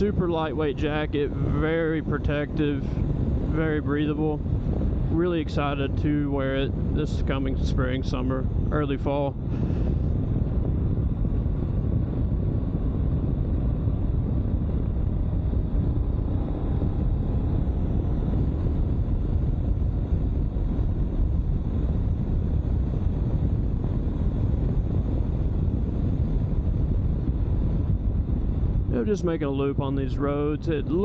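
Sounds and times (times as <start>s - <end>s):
low wind rumble on microphone: 0.0s - 31.0s.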